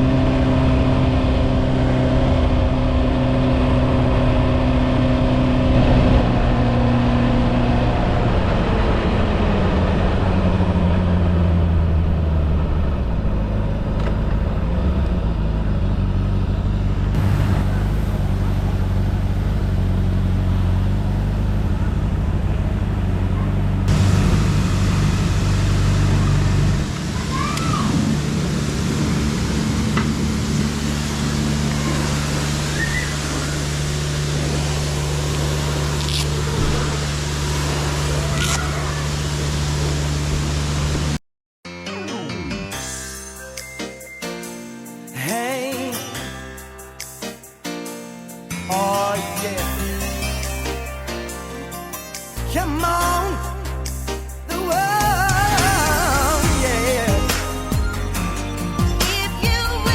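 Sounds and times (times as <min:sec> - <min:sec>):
motor running: 0:23.9 - 0:41.1.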